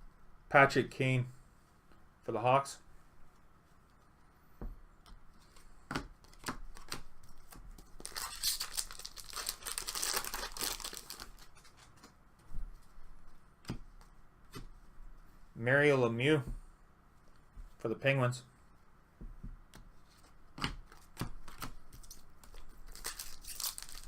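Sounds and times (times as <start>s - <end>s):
foil wrapper tearing and crinkling: 8.0s - 11.9s, 22.9s - 24.0s.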